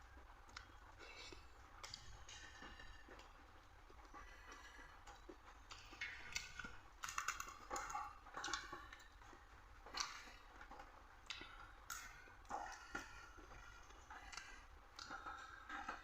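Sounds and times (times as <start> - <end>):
person chewing wetly: 0.0 - 16.0.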